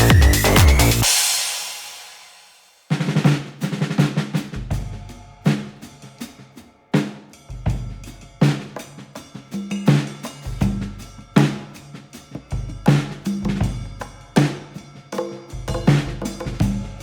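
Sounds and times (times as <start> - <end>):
drum-led beat with deep bass: 0.0 - 2.4, 4.4 - 5.9, 15.6 - 17.0.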